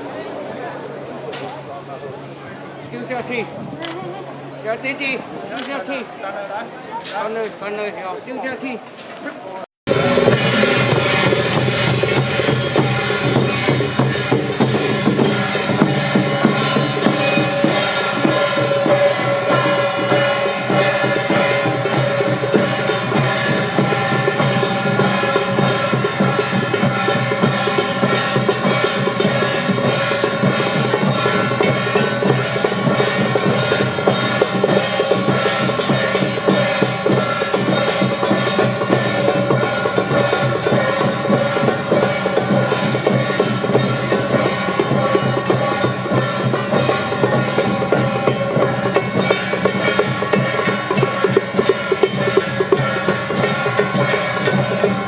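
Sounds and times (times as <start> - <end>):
drums: 0.0 - 55.0
held melodic tones: 9.9 - 55.0
wood block percussion: 9.9 - 55.0.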